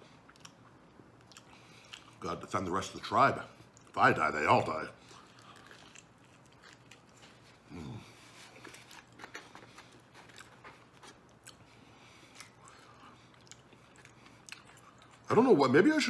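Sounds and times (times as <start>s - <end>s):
man chewing: 0.0s - 2.2s, 3.6s - 4.0s, 5.0s - 15.3s.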